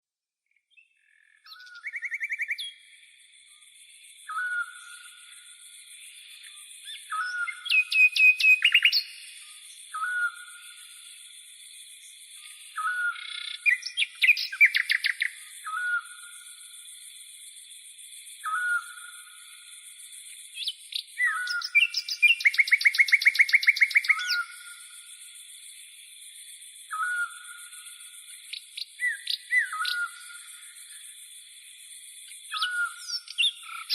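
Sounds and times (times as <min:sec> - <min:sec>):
songbirds singing: 0:00.4 - 0:33.9
bird fast trill: 0:07.2 - 0:09.2, 0:21.2 - 0:24.4.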